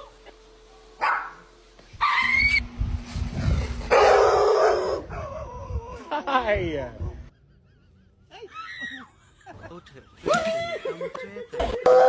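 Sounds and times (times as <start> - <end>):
dog barking: 1.0 - 1.4, 3.9 - 5.1.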